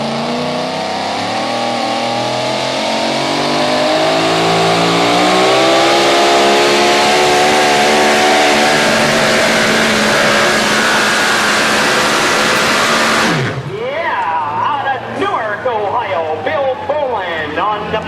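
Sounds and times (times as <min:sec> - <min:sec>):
truck engine revving under load: 0:00.0 - 0:13.8.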